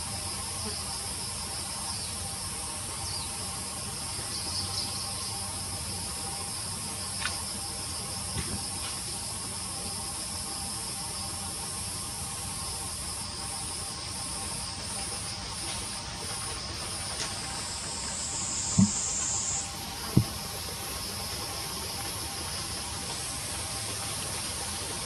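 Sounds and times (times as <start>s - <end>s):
insect chorus buzzing: 0.0s - 25.0s
short low thumps: 18.8s - 19.1s.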